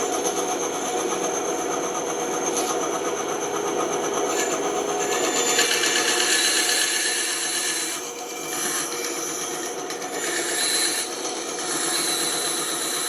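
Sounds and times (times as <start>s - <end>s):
band saw cutting wood: 3.9s - 13.0s.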